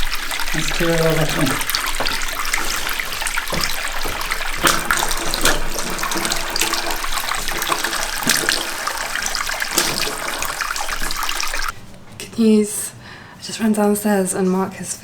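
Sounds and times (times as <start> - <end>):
handling knocks and clatters: 0.0 - 11.8
water running and splashing: 0.0 - 11.8.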